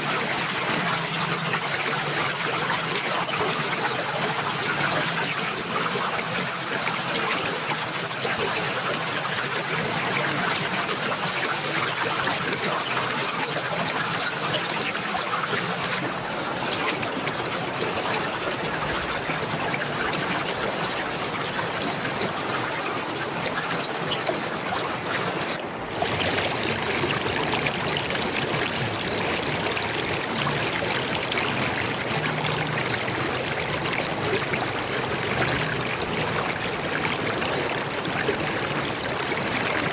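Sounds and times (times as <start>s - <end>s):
running water trickling: 0.0s - 39.9s.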